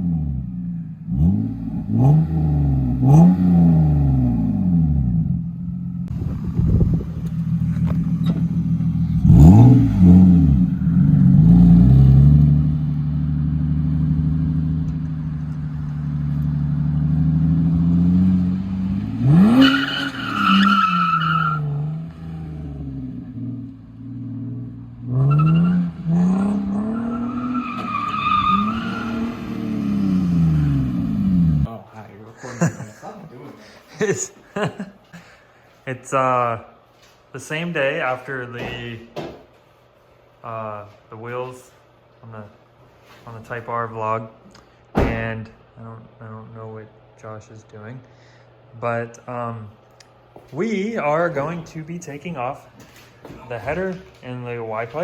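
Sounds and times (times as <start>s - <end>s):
car engine revving: 0.0s - 31.7s.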